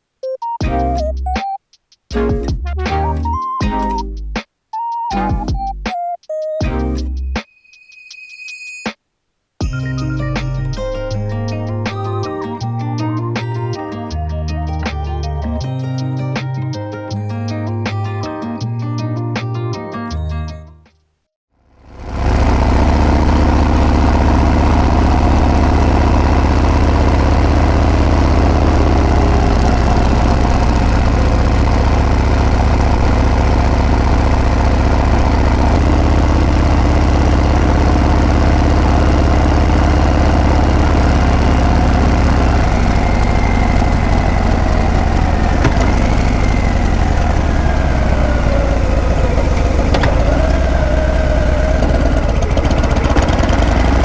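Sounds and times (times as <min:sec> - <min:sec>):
motorcycle engine running: 0:21.8 - 0:54.0.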